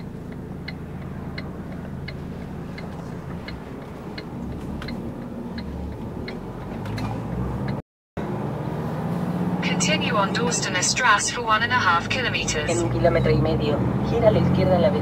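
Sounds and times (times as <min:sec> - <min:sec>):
turn signal ticking: 0:00.0 - 0:07.8, 0:09.6 - 0:15.0
truck engine running: 0:00.0 - 0:13.6.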